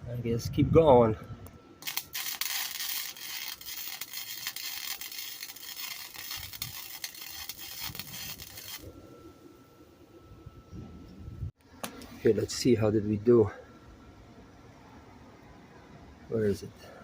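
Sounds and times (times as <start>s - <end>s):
welder crackling and popping: 1.8s - 8.9s.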